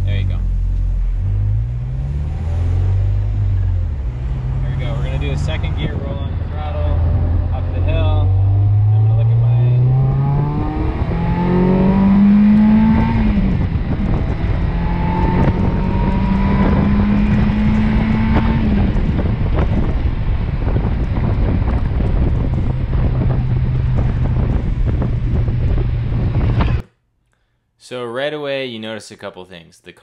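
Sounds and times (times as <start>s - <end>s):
car engine pulling under throttle: 0.0s - 26.8s
heavy wind noise: 2.9s - 26.8s.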